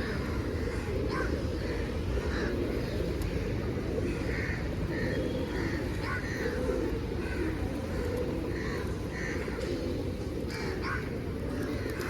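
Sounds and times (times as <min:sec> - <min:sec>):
pigeons cooing: 0:00.0 - 0:12.0
crow caws: 0:04.1 - 0:07.5, 0:08.6 - 0:09.6, 0:10.5 - 0:11.9.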